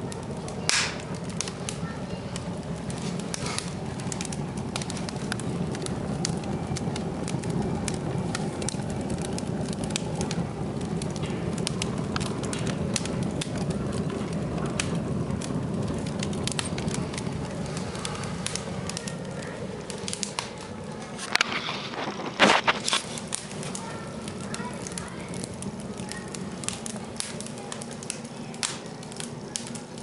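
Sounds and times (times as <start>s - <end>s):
fire draft rumble: 0.0s - 30.0s
wood fire crackling and popping: 0.0s - 30.0s
sharp wood snap: 0.7s - 1.6s.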